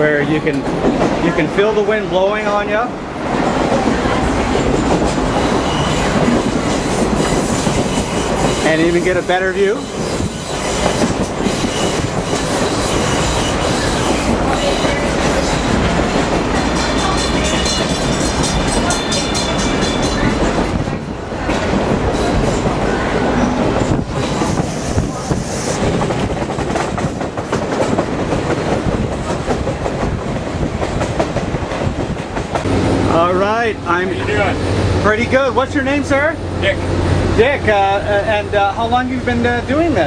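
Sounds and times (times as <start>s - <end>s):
train rumbling: 0.0s - 40.0s
clickety-clack of train wheels: 0.2s - 1.4s, 3.4s - 32.7s.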